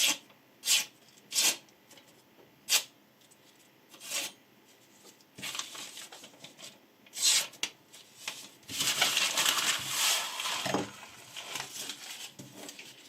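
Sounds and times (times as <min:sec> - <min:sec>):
knife blade scraping: 0:04.0 - 0:04.4.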